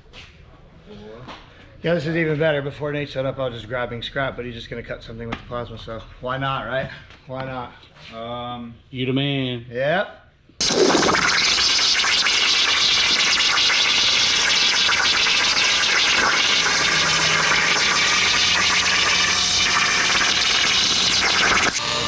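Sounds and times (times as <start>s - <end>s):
plasma cutter hissing: 10.6s - 21.8s.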